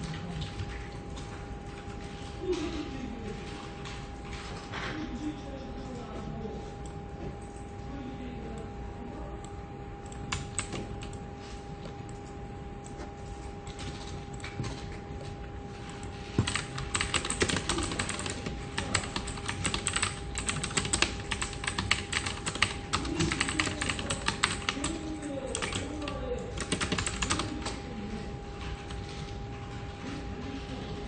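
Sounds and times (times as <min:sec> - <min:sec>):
computer keyboard typing: 0:09.4 - 0:11.2, 0:11.8 - 0:29.9.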